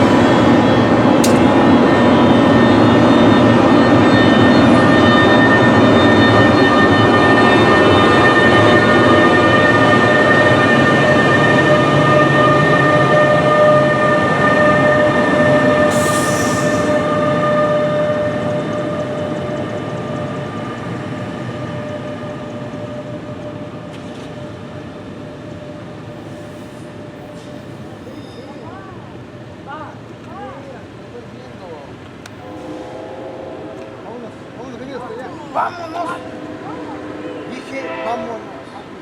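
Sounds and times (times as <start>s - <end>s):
train wheels rumbling: 0.0s - 28.8s, 29.5s - 39.0s
train mechanical whine: 0.0s - 39.0s
air hiss burst: 15.8s - 17.0s.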